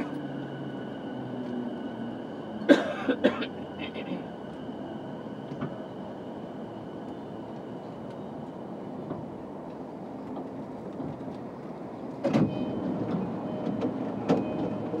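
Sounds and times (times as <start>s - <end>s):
electric train hum: 0.0s - 15.0s.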